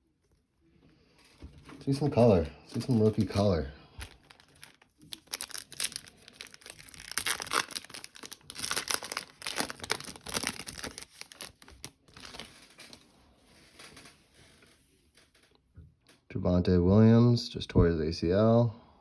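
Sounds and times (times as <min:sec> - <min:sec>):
wrapper tearing and crinkling: 0:01.9 - 0:13.0.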